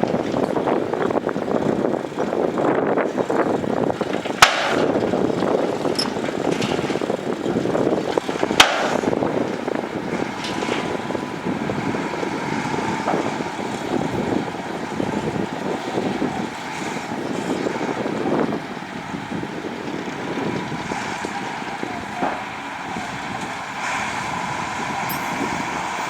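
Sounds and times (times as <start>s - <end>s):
earthmoving machinery engine: 0.0s - 26.0s
sharp knocks: 4.4s - 5.0s, 8.6s - 9.1s.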